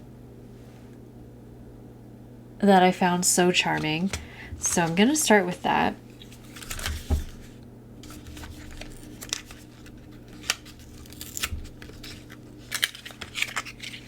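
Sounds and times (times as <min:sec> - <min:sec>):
plastic packaging clicking and crinkling: 0:06.2 - 0:14.0.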